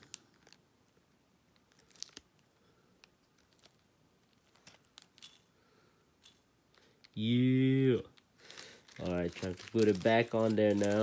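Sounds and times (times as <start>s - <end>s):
faint handling clicks and rustles: 0.0s - 5.6s, 8.1s - 11.0s.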